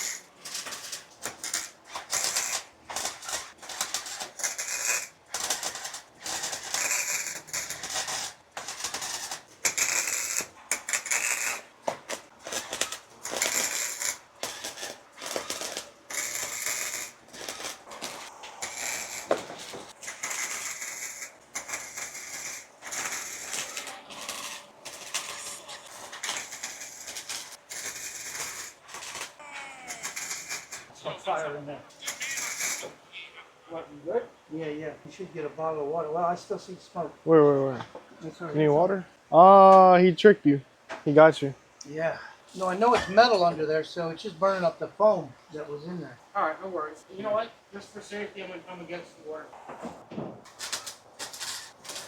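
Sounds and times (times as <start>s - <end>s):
welding arc crackling: 0.0s - 33.0s, 42.5s - 45.2s, 47.1s - 52.0s.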